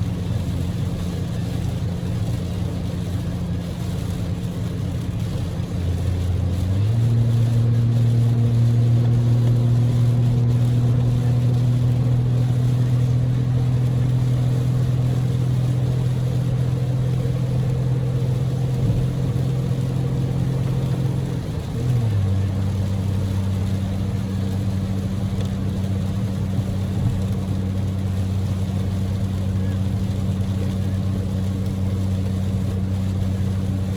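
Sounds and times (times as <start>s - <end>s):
car engine droning: 0.0s - 33.9s
heavy rain: 0.0s - 33.9s
road noise: 0.0s - 33.9s.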